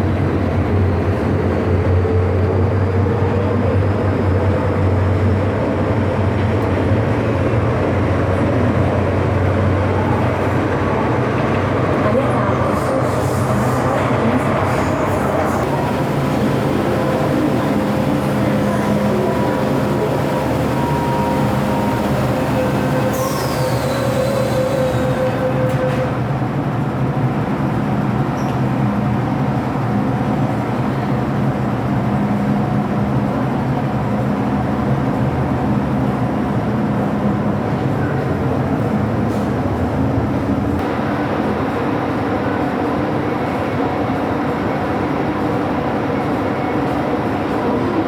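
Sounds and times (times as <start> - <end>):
train rumbling on track: 0.0 - 48.0
train motor tones: 14.7 - 26.2.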